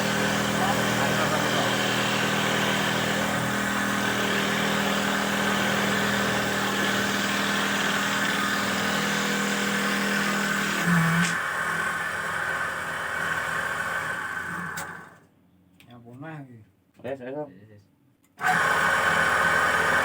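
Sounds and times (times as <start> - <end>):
motor hum: 0.0 - 15.2.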